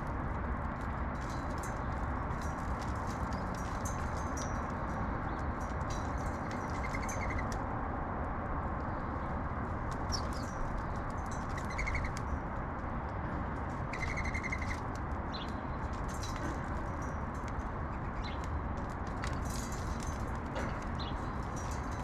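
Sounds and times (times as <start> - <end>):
low city rumble: 0.0 - 22.0
sparrows chirping: 3.2 - 7.6, 10.0 - 12.4, 13.9 - 17.1, 17.8 - 18.6, 20.9 - 22.0
bird trills: 6.5 - 7.5, 11.4 - 12.2, 13.9 - 14.8.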